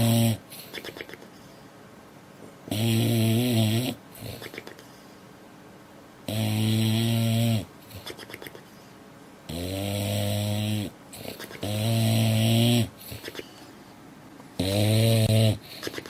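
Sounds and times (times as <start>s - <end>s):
dog snoring: 0.0s - 1.2s, 2.7s - 4.8s, 6.3s - 8.6s, 9.5s - 13.5s, 14.6s - 16.0s.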